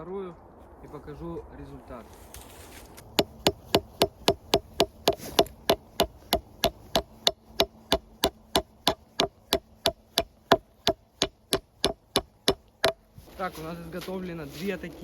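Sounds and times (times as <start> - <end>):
hand tool striking wood: 3.0 - 13.3.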